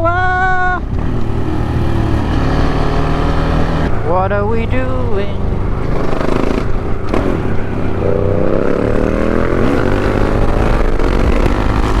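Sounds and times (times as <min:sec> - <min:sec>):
motorcycle engine: 0:00.0 - 0:12.0
wind rumble on microphone: 0:02.8 - 0:12.0.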